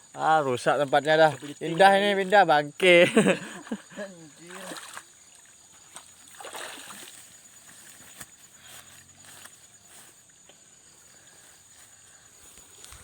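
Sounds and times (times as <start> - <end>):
river water splashing: 1.0 - 9.5.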